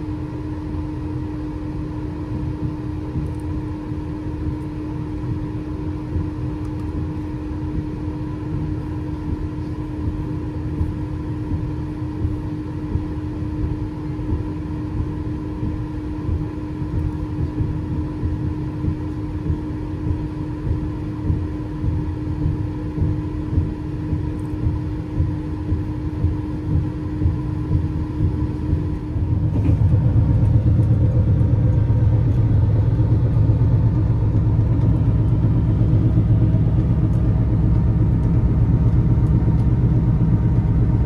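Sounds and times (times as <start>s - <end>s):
constant hum: 0.0s - 41.0s
train carriage rumbling on rails: 27.7s - 41.0s.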